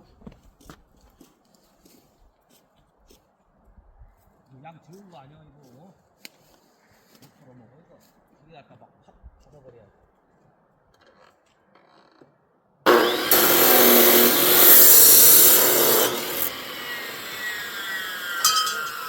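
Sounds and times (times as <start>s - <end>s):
electric saw cutting wood: 12.9s - 19.0s.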